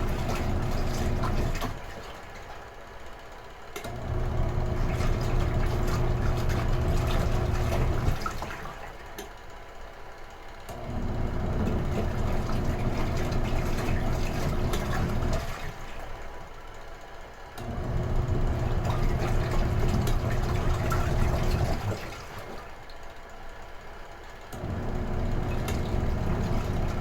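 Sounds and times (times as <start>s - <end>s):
water churning: 0.0s - 2.6s, 4.0s - 9.1s, 10.9s - 16.4s, 17.8s - 22.9s, 24.7s - 27.0s
washing machine motor humming: 0.0s - 27.0s.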